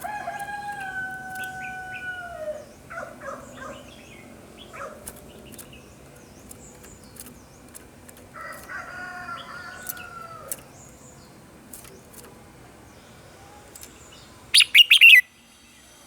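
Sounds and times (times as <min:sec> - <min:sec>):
rooster crowing: 0:00.0 - 0:02.7, 0:08.4 - 0:10.5
small birds chipping: 0:00.0 - 0:15.2.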